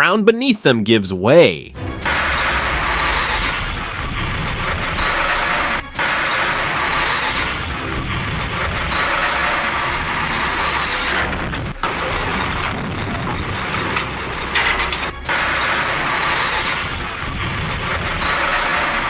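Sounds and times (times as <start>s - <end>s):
moving vehicle running: 1.8s - 19.0s.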